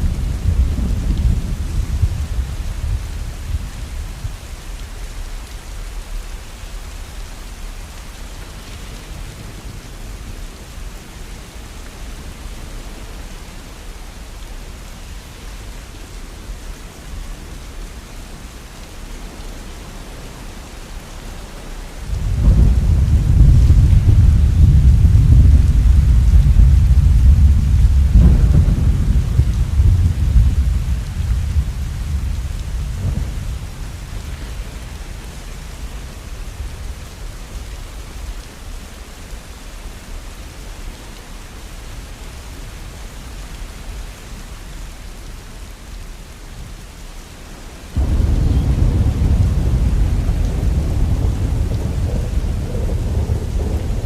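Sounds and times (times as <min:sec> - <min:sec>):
thunder rumbling: 0:00.0 - 0:04.4, 0:22.1 - 0:37.2, 0:48.0 - 0:54.0
steady rain falling: 0:00.0 - 0:54.0.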